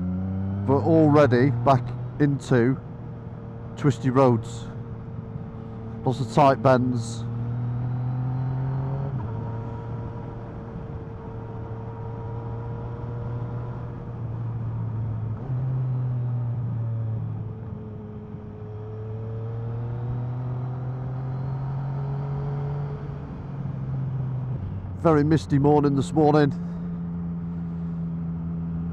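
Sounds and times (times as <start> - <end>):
wind and road rush: 0.0 - 28.9
motorcycle engine running: 23.0 - 28.9.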